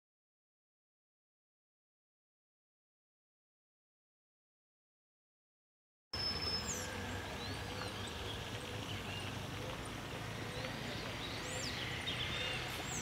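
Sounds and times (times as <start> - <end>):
wild birds chirping: 6.2 - 13.0.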